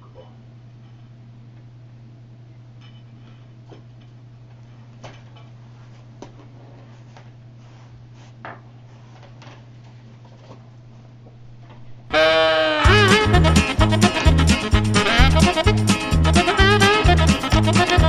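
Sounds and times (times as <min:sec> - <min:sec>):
steady low hum: 0:10.0 - 0:18.0.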